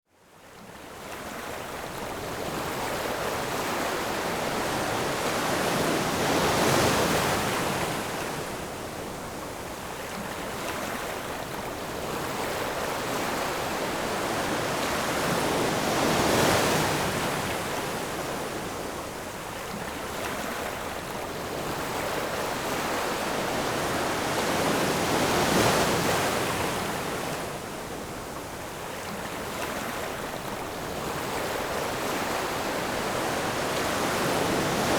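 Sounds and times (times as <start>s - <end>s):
ocean waves breaking: 31.0s - 34.9s.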